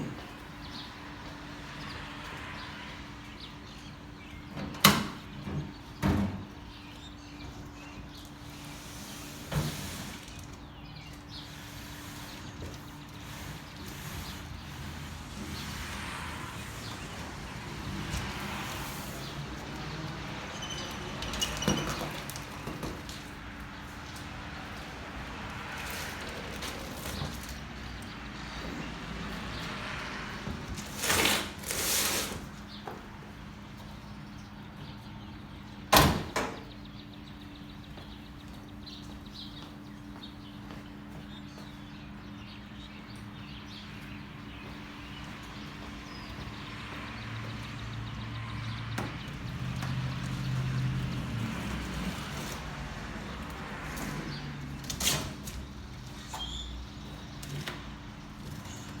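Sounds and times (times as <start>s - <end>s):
scraping: 30.7s - 32.6s.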